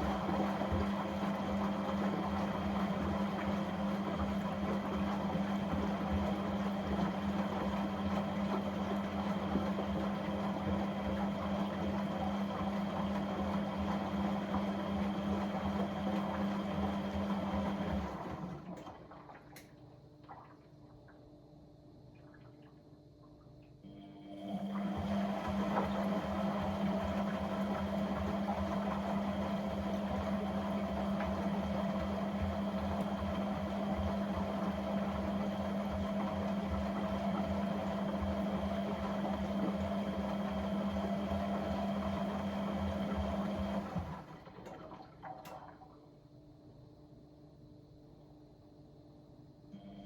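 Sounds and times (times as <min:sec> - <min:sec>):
washing appliance running: 0:00.0 - 0:50.0.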